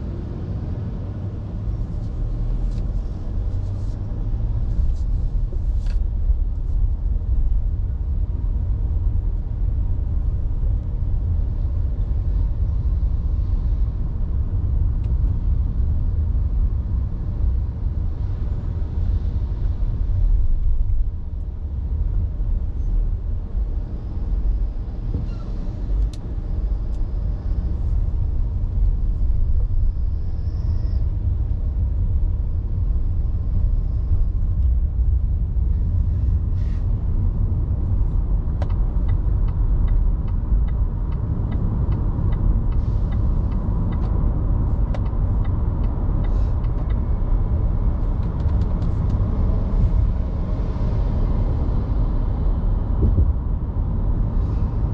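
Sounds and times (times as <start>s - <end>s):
road and engine rumble: 0.0s - 54.9s.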